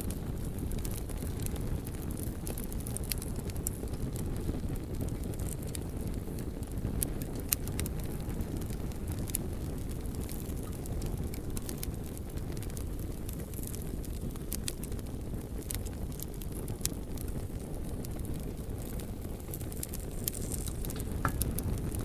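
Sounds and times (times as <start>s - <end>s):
fire crackling and popping: 0.0s - 22.0s
low rumble of flames: 0.0s - 22.0s.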